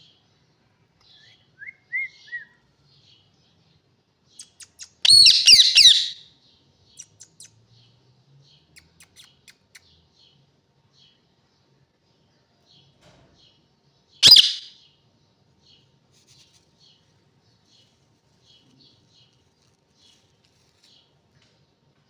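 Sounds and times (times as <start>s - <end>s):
parrot chirping and squawking: 4.9s - 6.2s, 14.2s - 14.7s.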